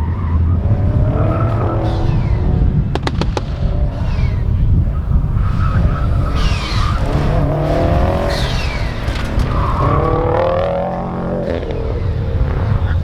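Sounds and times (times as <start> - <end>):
car engine pulling hard: 0.0 - 13.0
tyres squealing on asphalt: 3.7 - 13.0
high falling whistles: 3.9 - 10.6.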